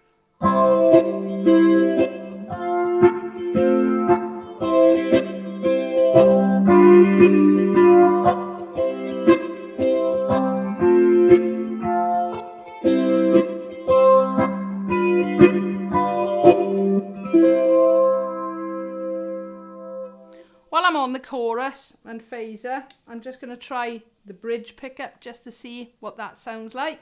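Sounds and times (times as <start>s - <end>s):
electric ukulele plucked notes and chords: 0.0s - 20.4s.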